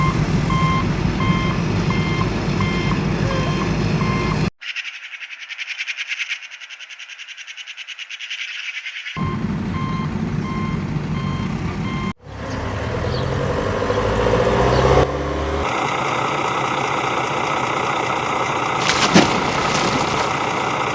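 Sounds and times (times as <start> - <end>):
truck engine rumbling: 0.0 - 4.5, 9.2 - 20.9.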